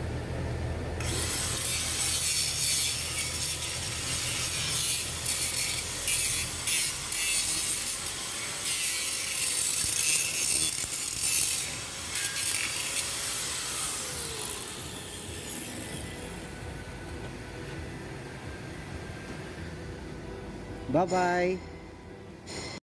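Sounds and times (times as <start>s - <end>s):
welding arc crackling hiss: 1.0s - 16.5s.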